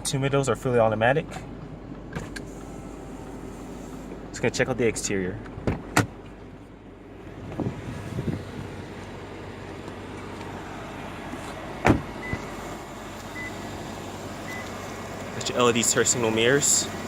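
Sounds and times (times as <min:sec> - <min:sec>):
car door opening: 0:02.1 - 0:02.8, 0:05.5 - 0:06.4, 0:07.4 - 0:10.6, 0:11.3 - 0:13.6
car door slamming shut: 0:05.6 - 0:06.2, 0:11.8 - 0:12.6.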